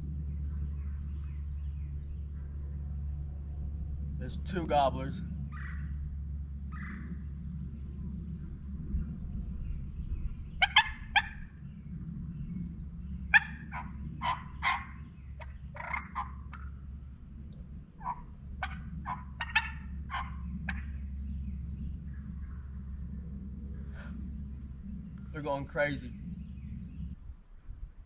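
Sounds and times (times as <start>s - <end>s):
low rumble: 0.0s - 28.0s
turkey clucking: 10.5s - 11.6s, 13.1s - 21.6s.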